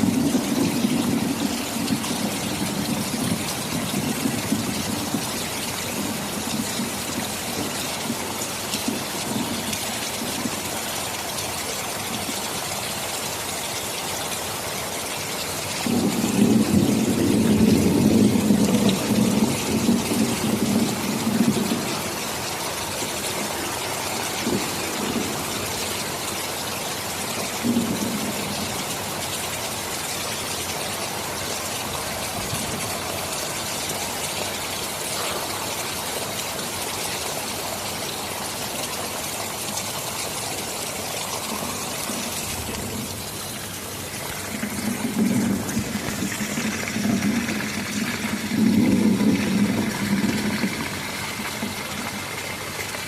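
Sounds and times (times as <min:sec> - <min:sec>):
thunder rumbling: 0:00.0 - 0:10.7, 0:15.8 - 0:29.2, 0:41.2 - 0:53.0
rain falling: 0:00.0 - 0:53.0.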